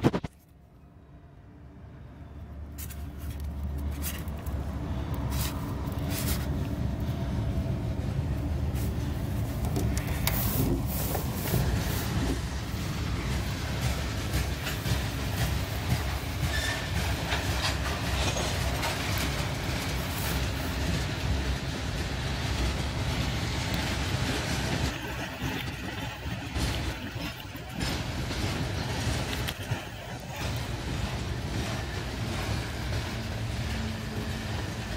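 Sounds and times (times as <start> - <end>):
freight train cars rumbling: 1.4 - 34.9
wheels clicking over rail joints: 8.3 - 34.9.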